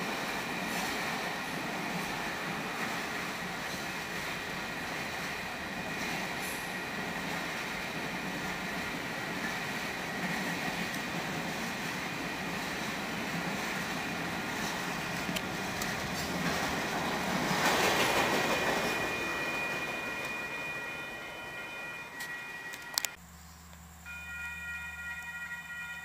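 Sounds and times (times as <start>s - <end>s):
train wheels rushing on rail: 0.0s - 23.2s
thin high tone: 18.6s - 26.0s.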